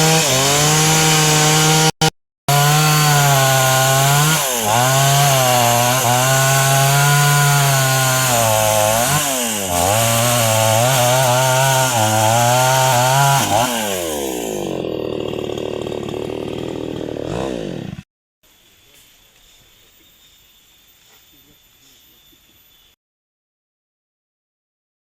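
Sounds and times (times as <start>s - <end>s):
chainsaw cutting wood: 0.0s - 18.1s
faint outdoor background: 18.4s - 23.0s.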